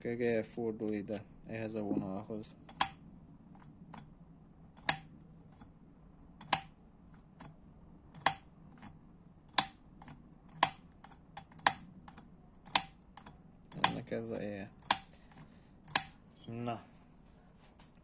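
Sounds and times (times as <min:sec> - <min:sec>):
sharp clicks of engine parts: 0:02.6 - 0:03.0, 0:04.8 - 0:05.7, 0:06.4 - 0:14.1, 0:14.7 - 0:16.2.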